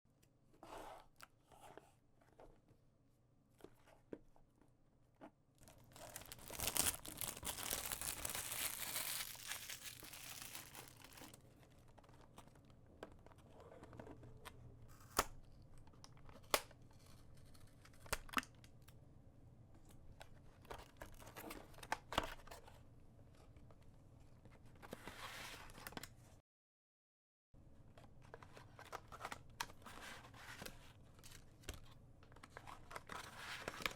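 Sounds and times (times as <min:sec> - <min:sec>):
packaging rustling: 0:05.6 - 0:11.4
plastic wrapping tearing and crinkling: 0:05.6 - 0:11.4.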